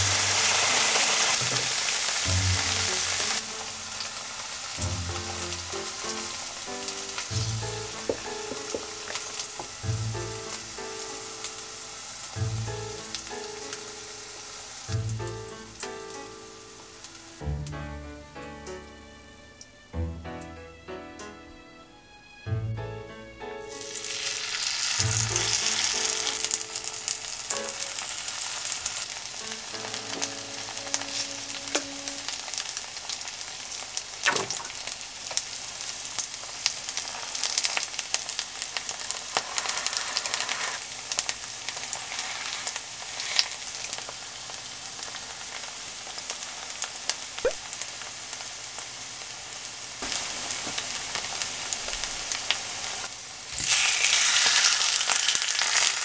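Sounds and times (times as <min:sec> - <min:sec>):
batter sizzling in oil: 0:00.0 - 0:20.0, 0:23.6 - 0:56.0
spoon knocking on pan: 0:07.9 - 0:09.8.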